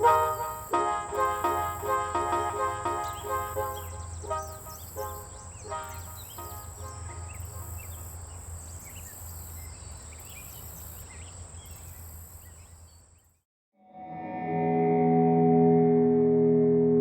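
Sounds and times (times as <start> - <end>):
high thin tone: 0.0 - 7.9
music with sustained tones: 0.0 - 8.0, 14.0 - 17.0.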